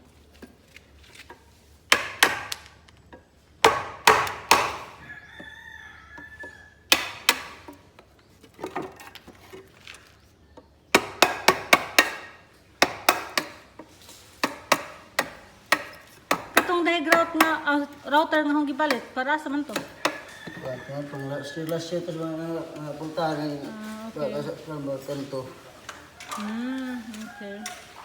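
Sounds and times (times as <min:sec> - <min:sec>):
hammer striking wood: 0:01.9 - 0:02.7, 0:03.6 - 0:05.1, 0:06.9 - 0:07.8, 0:10.9 - 0:13.8, 0:14.4 - 0:17.8, 0:18.8 - 0:20.3.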